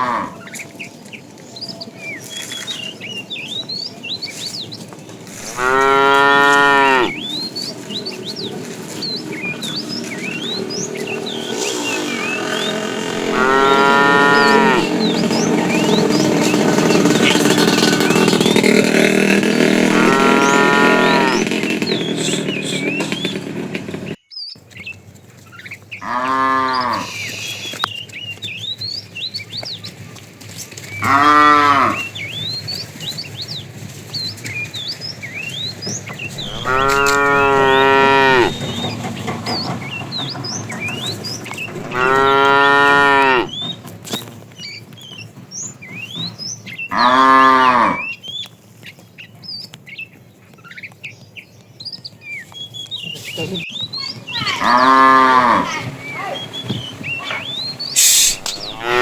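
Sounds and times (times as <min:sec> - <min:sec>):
cattle mooing: 0:00.0 - 0:00.4, 0:05.3 - 0:07.3, 0:09.4 - 0:21.7, 0:26.0 - 0:27.4, 0:31.0 - 0:32.1, 0:36.4 - 0:38.9, 0:41.6 - 0:43.6, 0:46.9 - 0:48.1, 0:54.4 - 0:56.4, 0:57.2 - 0:59.0
small birds chirping: 0:00.0 - 0:59.0.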